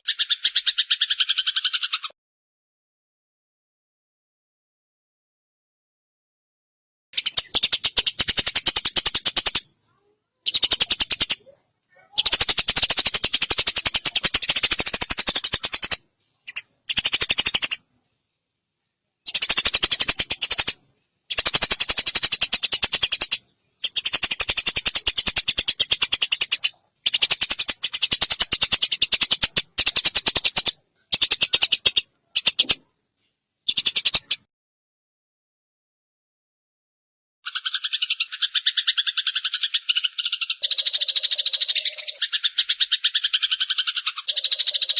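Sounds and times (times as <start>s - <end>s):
sparrows chattering: 0.0s - 2.1s, 7.2s - 17.9s, 19.2s - 32.8s, 33.7s - 34.5s, 37.5s - 44.9s.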